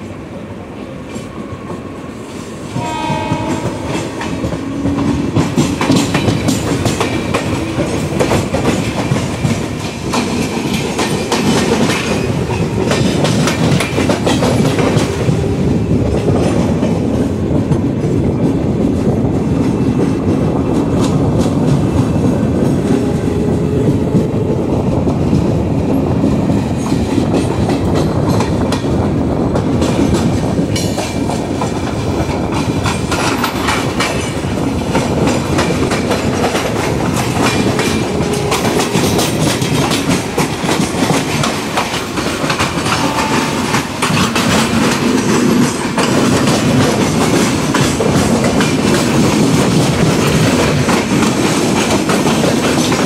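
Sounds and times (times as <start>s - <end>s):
trains rumbling: 0.0s - 53.0s
wheels clacking over rail joints: 3.1s - 19.0s, 26.2s - 53.0s.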